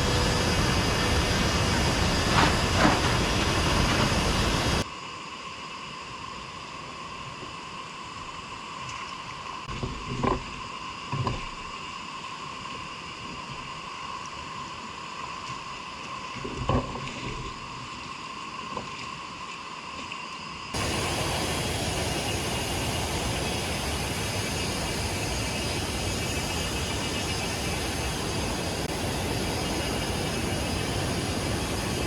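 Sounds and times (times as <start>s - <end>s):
creek ambience: 20.8s - 32.0s
rushing flowing water: 20.8s - 32.0s.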